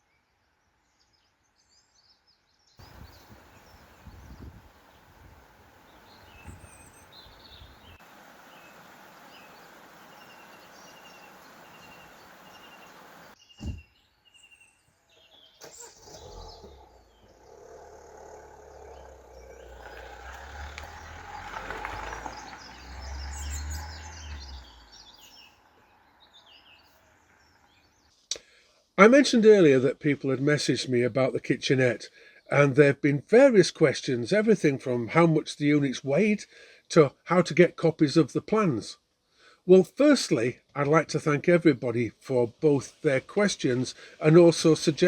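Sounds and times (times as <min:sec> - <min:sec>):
bird short high chirp: 0:05.9 - 0:08.7
thud: 0:13.6 - 0:14.0.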